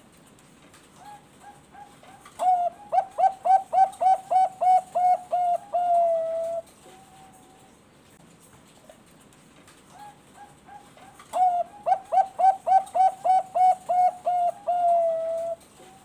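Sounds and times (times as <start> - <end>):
dove cooing: 1.0 - 7.7, 9.9 - 16.0.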